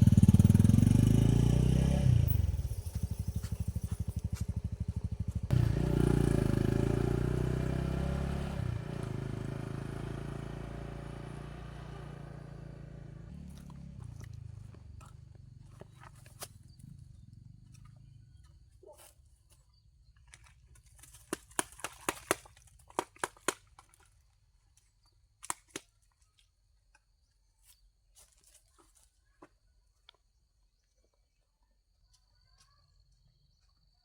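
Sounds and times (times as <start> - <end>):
faint high insect tone: 26.6 - 34.0.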